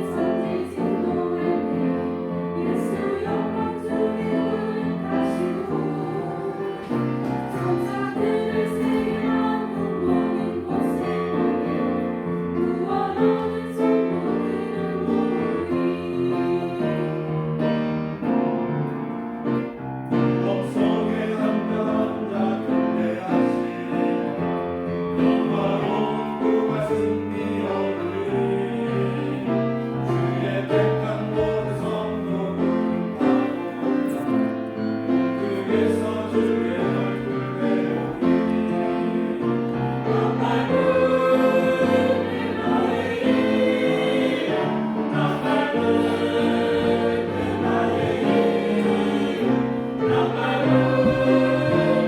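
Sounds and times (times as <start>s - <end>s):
church choir singing a hymn: 0.0s - 52.0s
piano accompaniment: 0.0s - 52.0s.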